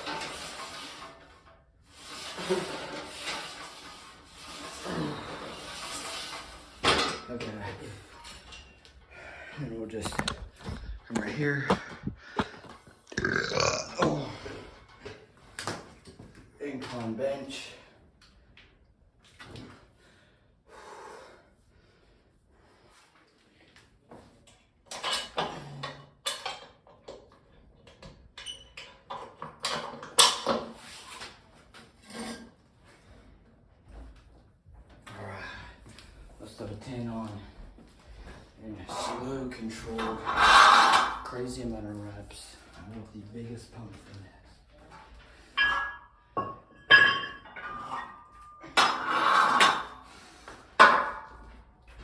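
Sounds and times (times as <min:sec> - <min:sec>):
weight plates clanking on barbell: 0:45.5 - 0:50.0.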